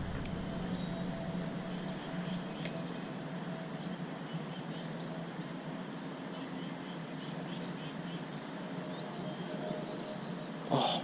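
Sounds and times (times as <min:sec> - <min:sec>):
faint bird chirps: 0:00.0 - 0:05.5
outdoor background noise: 0:00.0 - 0:11.0.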